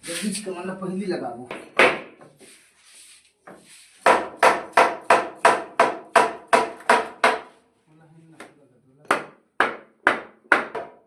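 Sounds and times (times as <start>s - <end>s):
hammer striking wood: 1.5s - 2.3s, 3.5s - 7.6s, 9.0s - 11.0s
faint scrape: 2.4s - 4.0s.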